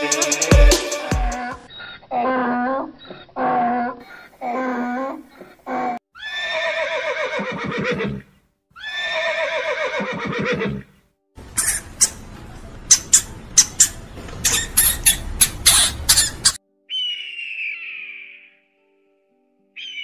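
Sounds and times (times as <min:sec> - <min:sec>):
horse neighing: 0:06.2 - 0:11.0
high-pitched clicks and squeaks: 0:12.9 - 0:16.6.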